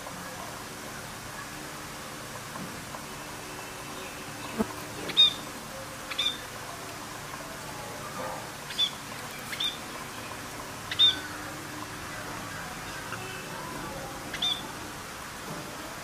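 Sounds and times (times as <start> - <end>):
steady hiss: 0.0 - 16.0
budgerigars chirping: 5.1 - 5.4, 6.1 - 6.4, 8.7 - 9.8, 10.9 - 11.3, 14.3 - 14.7.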